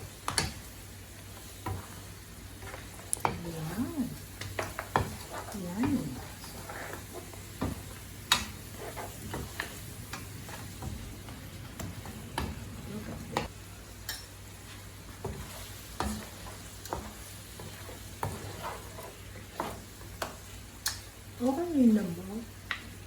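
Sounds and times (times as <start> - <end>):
low sizzle: 0.0 - 23.0
utensil scraping a pan: 4.4 - 11.0, 15.2 - 20.3.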